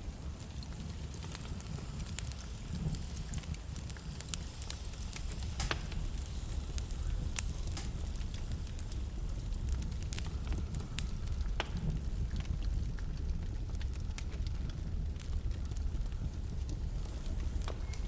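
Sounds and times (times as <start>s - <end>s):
wood fire burning: 0.0s - 18.0s.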